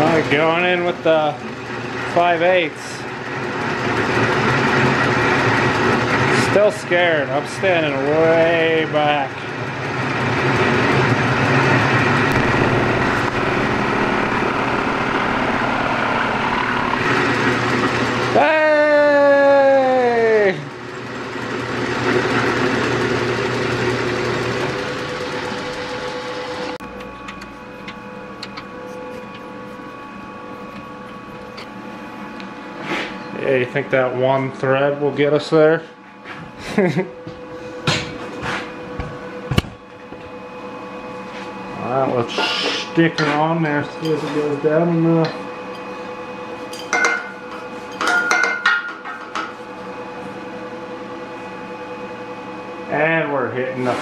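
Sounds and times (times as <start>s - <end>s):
steady machine hum: 0.0s - 54.0s
metal lathe drilling: 10.3s - 18.5s, 20.8s - 30.0s.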